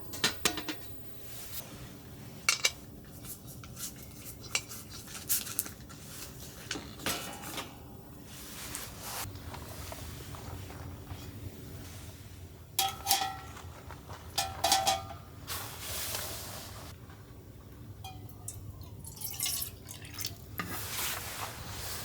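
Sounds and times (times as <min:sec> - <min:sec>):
metal utensils clinking: 0:00.0 - 0:01.0, 0:06.6 - 0:08.0, 0:12.8 - 0:15.4
stirring and scraping: 0:02.4 - 0:06.7.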